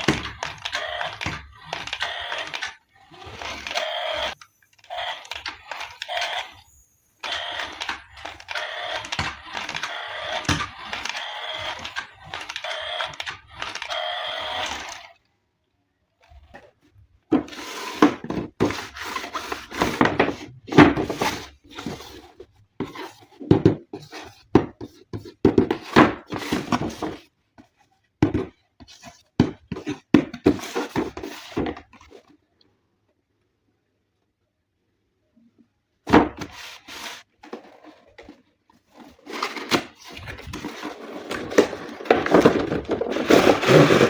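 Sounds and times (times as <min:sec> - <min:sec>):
plastic toy parts clicking: 0:00.0 - 0:15.2.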